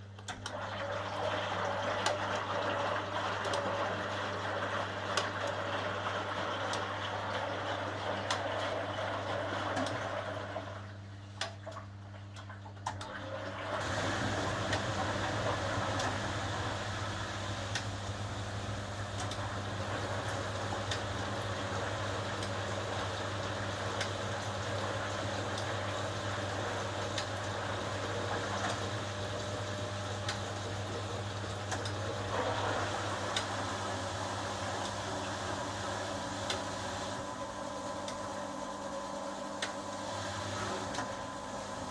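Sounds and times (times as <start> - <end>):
washing machine hum: 0.0 - 41.9
water rushing and sloshing: 13.7 - 37.4.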